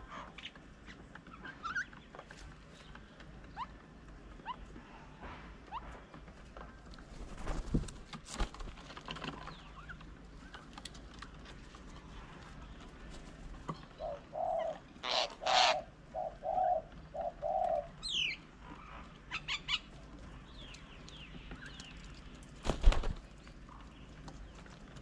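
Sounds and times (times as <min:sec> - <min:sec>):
birds chirping: 0:00.0 - 0:25.0
dove cooing: 0:13.7 - 0:20.0
rough bird calls: 0:13.8 - 0:22.0.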